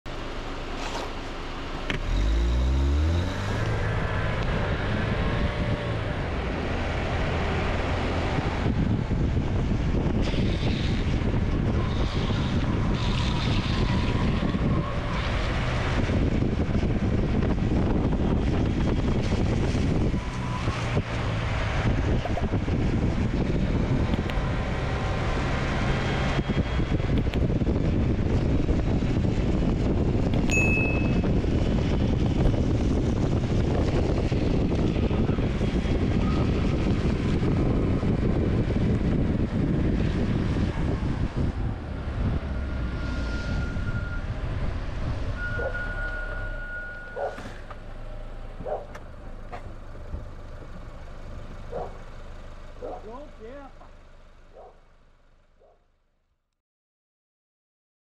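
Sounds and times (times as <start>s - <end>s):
car engine pulling away: 0.1s - 55.6s
road noise: 0.1s - 56.5s
wind rushing: 2.2s - 46.6s.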